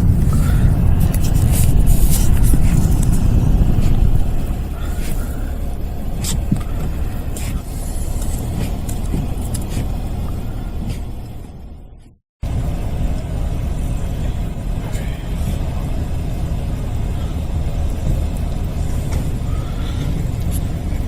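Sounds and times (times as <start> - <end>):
blizzard wind buffeting microphone: 0.0 - 21.0.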